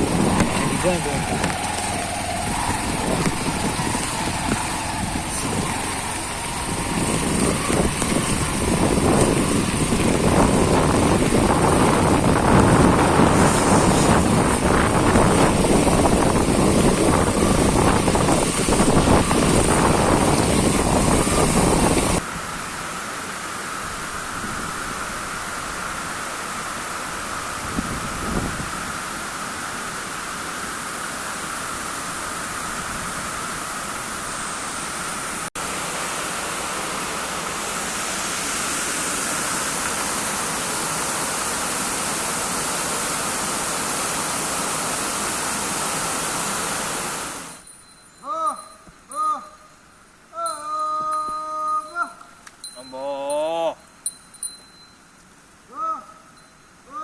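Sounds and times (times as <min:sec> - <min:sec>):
motorcycle engine running: 0:00.0 - 0:11.6
wind rushing over microphone: 0:00.0 - 0:22.6, 0:27.1 - 0:29.0
steady hiss: 0:00.0 - 0:57.0.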